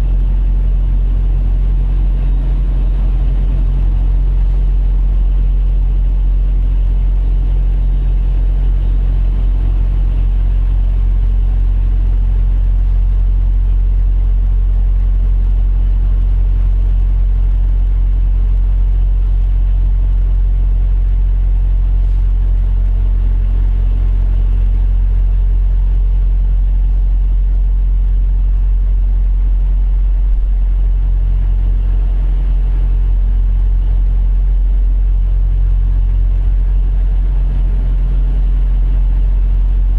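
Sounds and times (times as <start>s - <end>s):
truck diesel engine idling: 1.2s - 11.6s.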